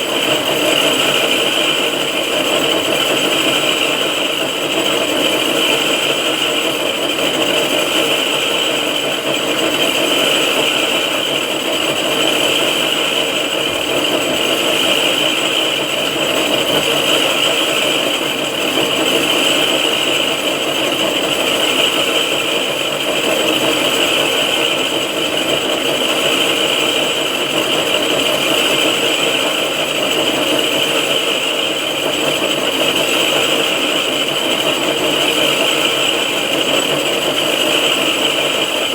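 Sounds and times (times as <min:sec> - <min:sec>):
milling machine running: 0:00.0 - 0:38.9.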